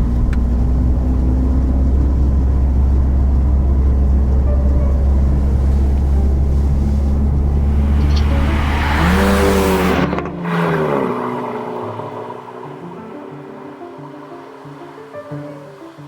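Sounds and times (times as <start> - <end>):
car driving past: 0.0 - 16.0
tyre and exhaust hiss: 1.9 - 10.1.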